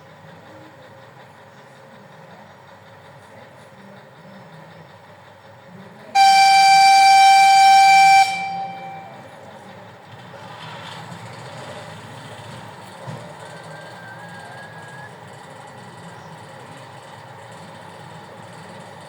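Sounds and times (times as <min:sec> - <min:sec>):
locomotive engine running: 0:00.0 - 0:19.0
locomotive horn blast: 0:06.2 - 0:09.2.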